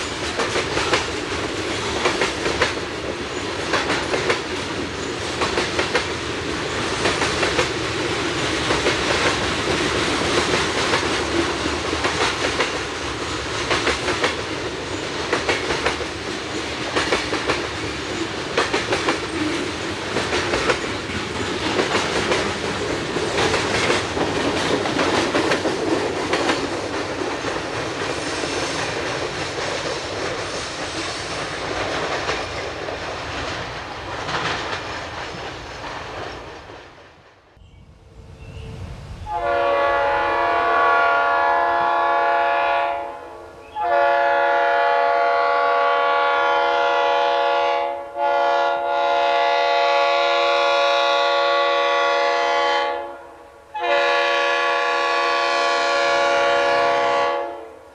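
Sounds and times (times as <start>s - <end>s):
wheels clicking over rail joints: 0.0s - 37.3s
train cars rumbling past: 0.0s - 57.9s.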